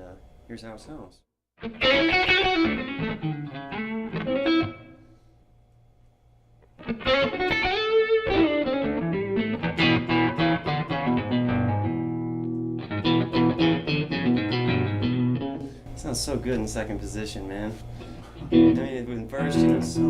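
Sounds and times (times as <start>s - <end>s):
overdriven electric guitar blues licks: 1.6s - 5.0s, 6.7s - 15.8s, 18.0s - 20.0s.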